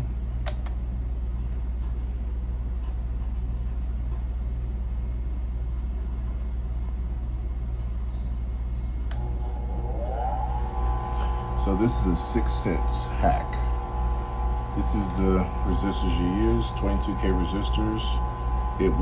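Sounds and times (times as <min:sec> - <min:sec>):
low mechanical hum and rumble: 0:00.0 - 0:19.0
sharp click: 0:00.4 - 0:00.8.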